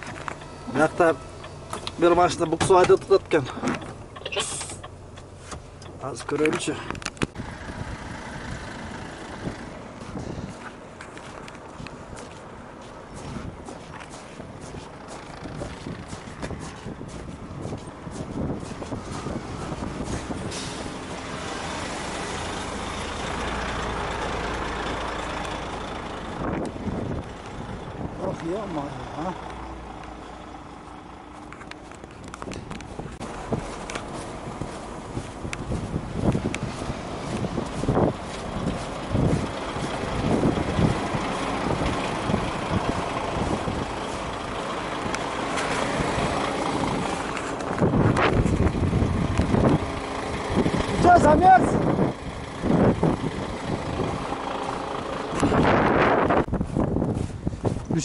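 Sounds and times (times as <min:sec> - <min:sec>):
truck engine idling: 0:00.0 - 0:58.0
wind: 0:00.0 - 0:58.0.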